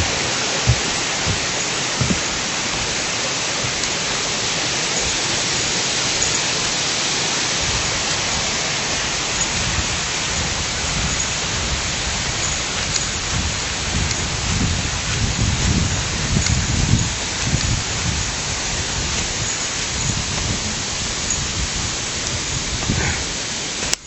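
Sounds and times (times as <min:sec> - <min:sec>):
low rumbling: 0:00.0 - 0:06.8
water rushing: 0:00.0 - 0:24.0.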